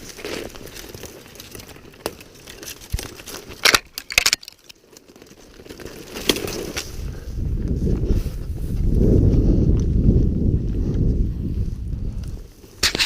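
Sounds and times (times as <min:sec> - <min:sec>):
footsteps rustling through dry brush: 0:04.6 - 0:13.0.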